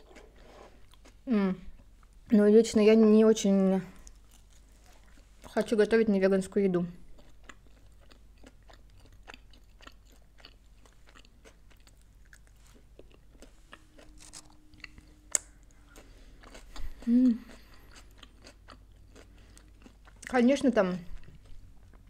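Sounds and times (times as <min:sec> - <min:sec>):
chewing crunchy chips: 0:04.0 - 0:05.7, 0:07.0 - 0:22.0
person vocal sound: 0:16.9 - 0:17.6.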